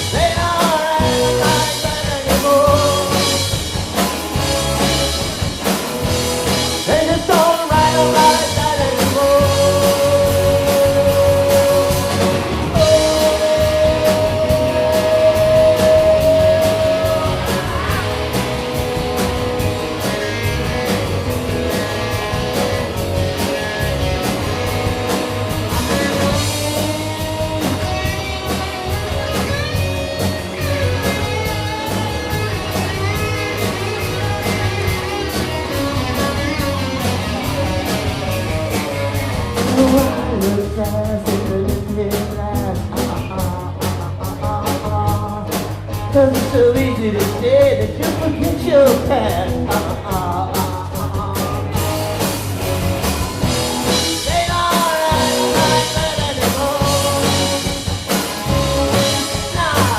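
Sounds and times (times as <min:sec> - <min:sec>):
live rock band playing: 0:00.0 - 0:59.9
lead guitar bending notes: 0:09.4 - 0:40.5.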